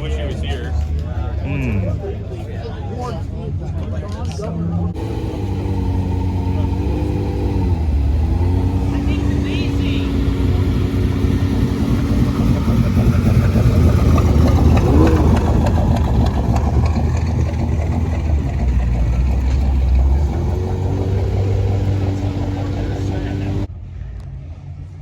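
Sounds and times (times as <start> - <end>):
car engine running: 4.9 - 23.7.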